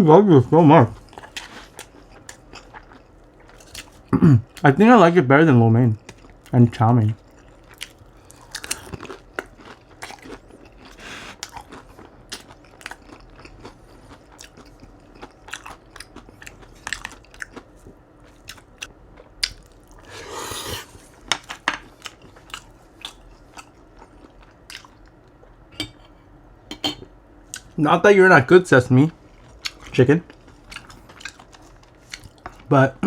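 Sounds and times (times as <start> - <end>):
person chewing crunchy food: 0.9 - 4.6, 6.0 - 6.5, 7.1 - 25.7, 29.2 - 32.7.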